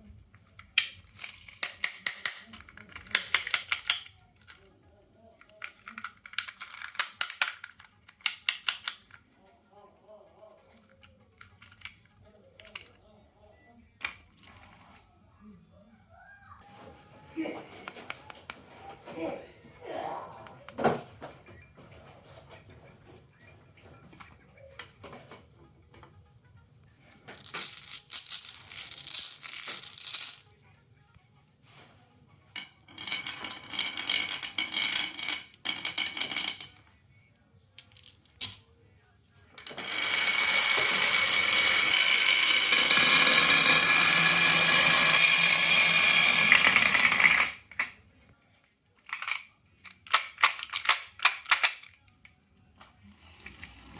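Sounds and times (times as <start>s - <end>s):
marbles rattling on a marble run: 27.3s - 30.6s, 32.6s - 36.8s, 37.8s - 38.6s, 39.6s - 47.9s.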